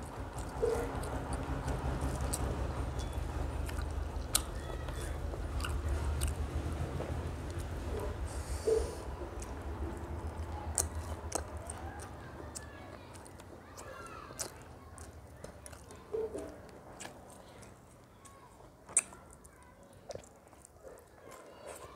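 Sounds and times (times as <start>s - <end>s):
chewing with wet mouth clicks: 0.3s - 6.5s, 9.4s - 21.9s.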